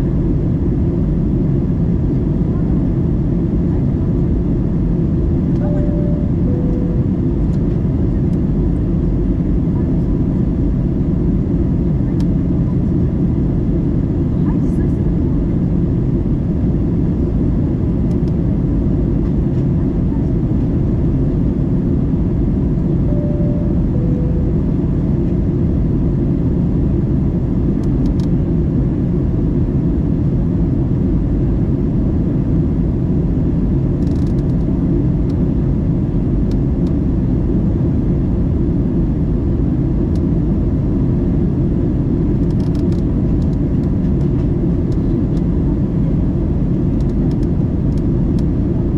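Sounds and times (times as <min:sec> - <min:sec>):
airliner cabin roar: 0:00.0 - 0:48.9
two-note falling chime: 0:05.6 - 0:07.2, 0:23.1 - 0:24.8.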